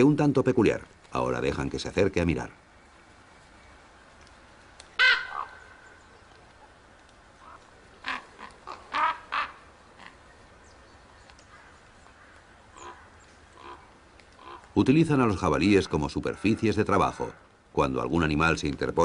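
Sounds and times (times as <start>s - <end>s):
ravens croaking: 4.9s - 10.6s, 11.4s - 18.2s.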